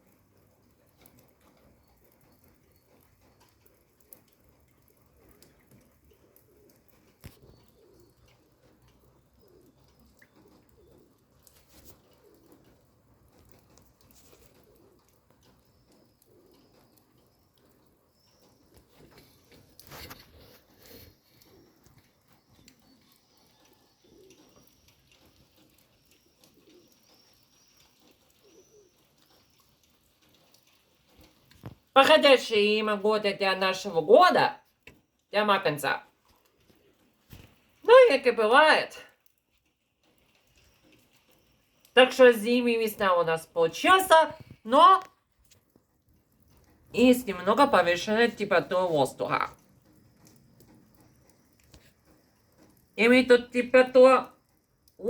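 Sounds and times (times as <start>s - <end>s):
faint low bird calls: 0.8s - 31.9s
bird cooing: 6.2s - 12.8s, 14.5s - 17.2s, 22.8s - 27.4s, 28.0s - 29.4s
faint high chirps: 14.2s - 29.7s.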